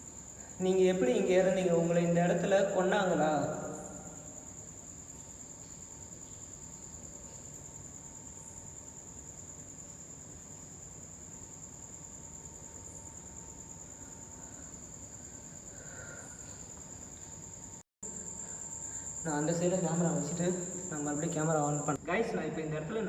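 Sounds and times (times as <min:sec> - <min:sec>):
crickets chirping: 0:00.0 - 0:23.0
faint background noise: 0:00.0 - 0:23.0.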